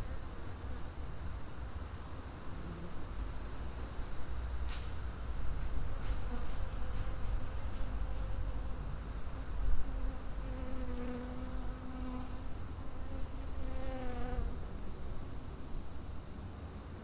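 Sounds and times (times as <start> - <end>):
insect buzzing: 9.8 - 14.8.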